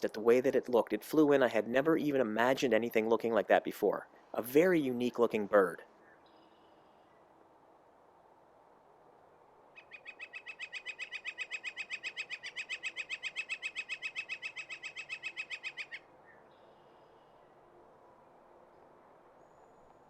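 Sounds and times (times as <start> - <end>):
woodpecker long call: 9.7 - 17.6.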